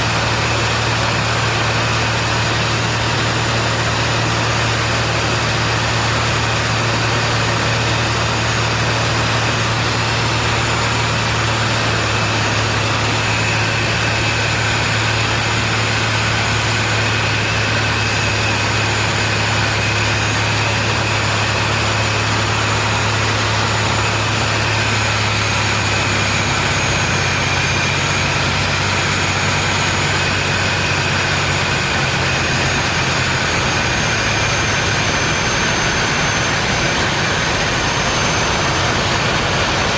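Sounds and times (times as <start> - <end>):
propeller aircraft engine droning: 0.0 - 39.9
loud rushing noise: 30.5 - 39.9.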